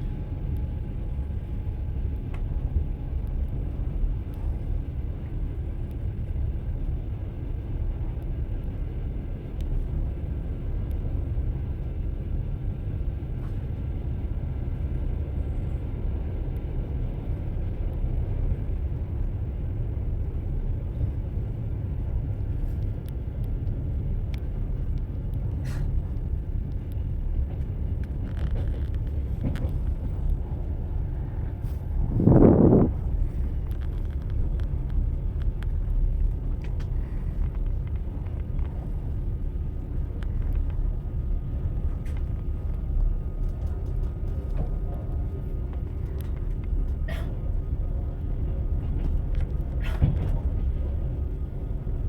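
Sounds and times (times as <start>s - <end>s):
train wheels rumbling on rails: 0.0s - 52.0s
light rail clicks: 2.2s - 4.6s, 13.0s - 52.0s.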